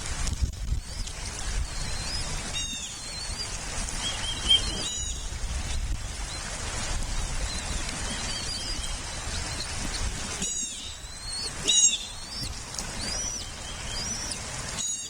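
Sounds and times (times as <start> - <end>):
low wind rumble: 0.0 - 14.8
eagles chirping: 0.8 - 5.4, 7.1 - 15.0.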